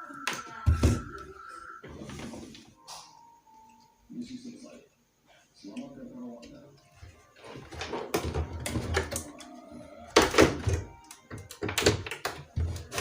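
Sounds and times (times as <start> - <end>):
knocks and clunks of handling parts: 7.4 - 9.4.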